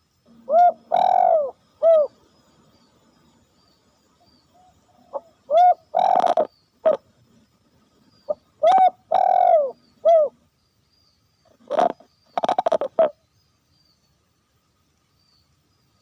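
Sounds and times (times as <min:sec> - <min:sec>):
dove cooing: 0:00.3 - 0:02.2, 0:04.6 - 0:07.0, 0:08.3 - 0:10.4, 0:11.6 - 0:13.2.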